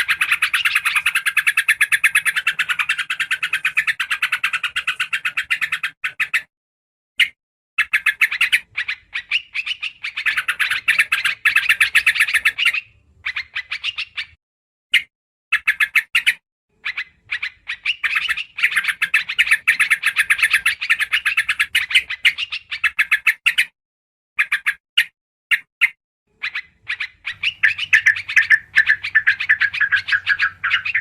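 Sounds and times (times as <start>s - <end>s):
bulbul rapid chattering song: 0.0s - 6.5s, 7.2s - 14.4s, 25.5s - 31.0s.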